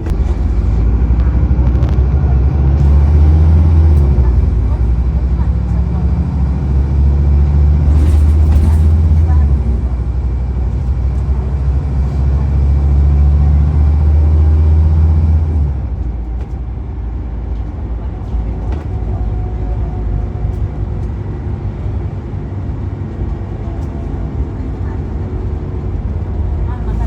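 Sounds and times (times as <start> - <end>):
bus diesel engine droning: 0.0 - 27.0
faint rattles: 7.8 - 11.4.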